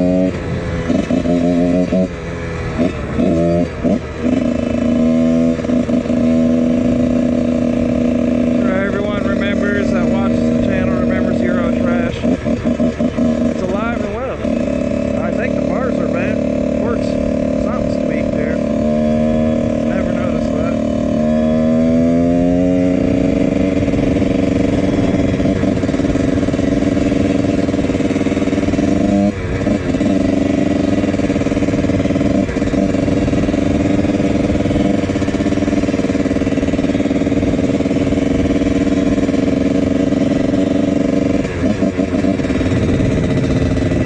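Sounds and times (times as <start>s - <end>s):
two-stroke motorcycle engine revving: 0.0s - 44.0s.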